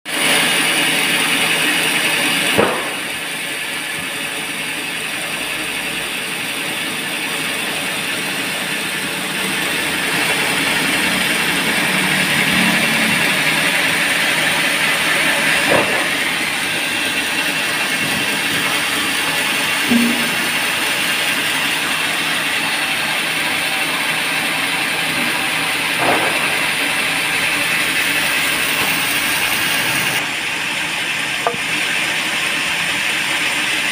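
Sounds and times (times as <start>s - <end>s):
band saw whirring: 0.1s - 33.9s
sharp knocks: 19.9s - 20.8s.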